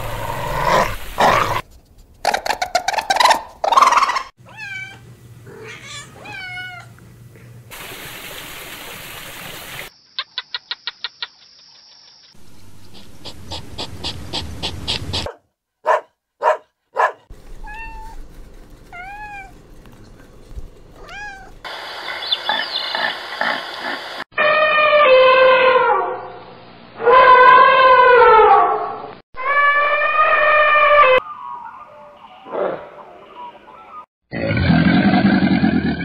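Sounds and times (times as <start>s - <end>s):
hedgehog snuffling: 12.6s - 15.3s.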